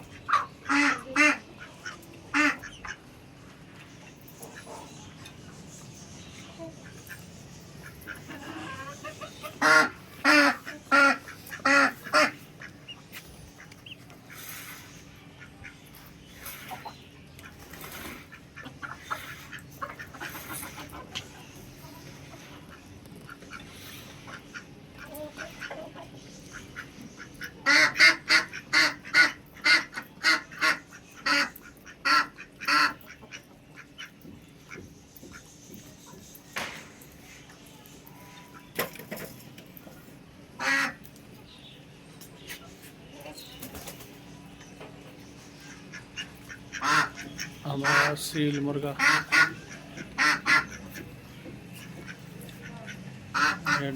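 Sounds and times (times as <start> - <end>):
ducks quacking: 0.0 - 3.2, 4.3 - 5.2, 6.4 - 35.6, 40.5 - 41.1, 45.4 - 53.9.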